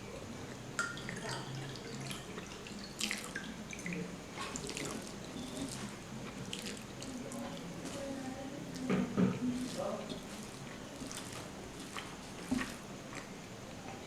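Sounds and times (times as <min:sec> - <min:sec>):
wet chewing and smacking: 0:04.3 - 0:13.3.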